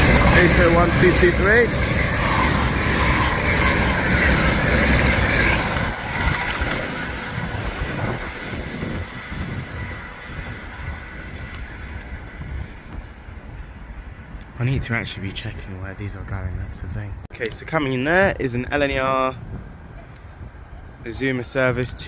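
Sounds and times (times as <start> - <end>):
electric train passing at speed: 0.0 - 16.3.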